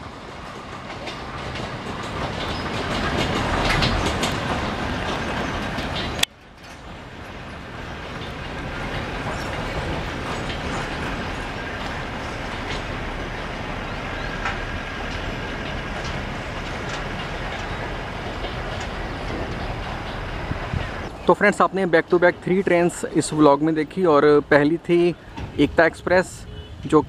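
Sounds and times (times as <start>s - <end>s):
wheels clicking: 0.0s - 25.8s
train wheels rumbling on rails: 0.0s - 27.0s.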